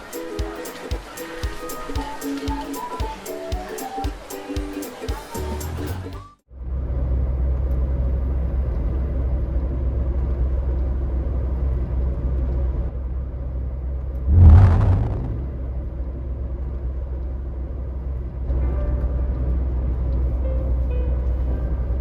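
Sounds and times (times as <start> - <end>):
low vehicle rumble: 14.2 - 22.0
whooshing surge: 14.3 - 15.6.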